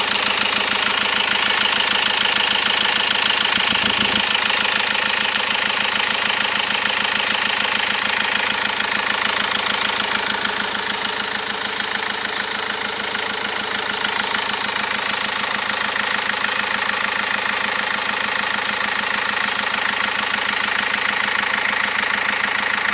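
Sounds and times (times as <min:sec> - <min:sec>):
car engine idling: 0:00.0 - 0:22.9
engine intake noise: 0:03.5 - 0:04.5.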